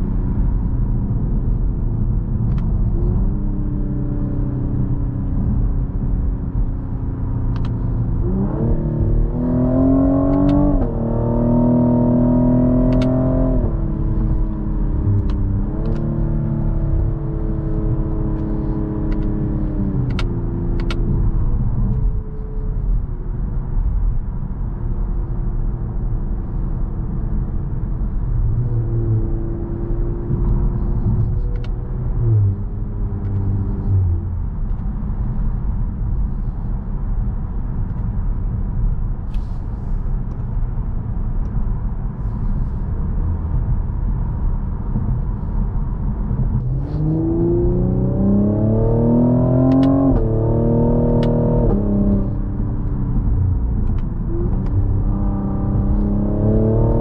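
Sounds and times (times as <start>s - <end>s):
road and tyre rumble: 0.0s - 57.0s
car engine accelerating: 2.2s - 22.2s, 41.1s - 57.0s.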